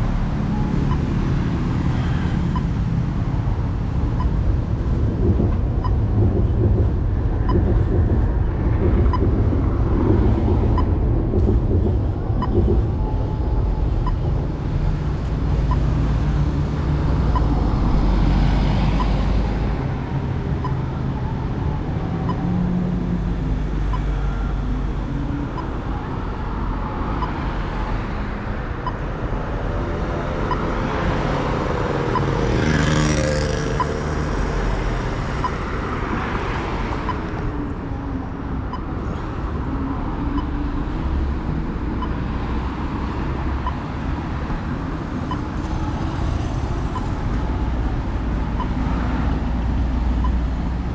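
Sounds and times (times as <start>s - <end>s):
road traffic: 0.0s - 50.9s
wind rumbling on microphone: 0.2s - 50.9s
motor vehicle passing: 30.6s - 37.4s.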